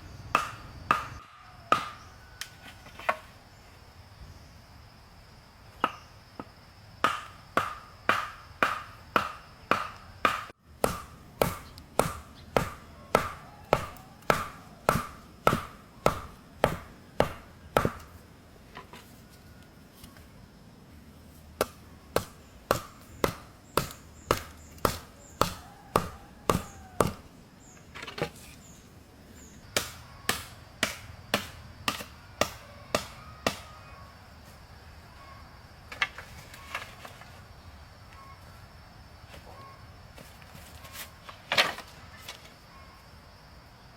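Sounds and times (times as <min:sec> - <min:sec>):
wood being chopped with a blade: 0:00.4 - 0:02.1, 0:07.0 - 0:18.2, 0:21.6 - 0:27.3, 0:29.7 - 0:33.6.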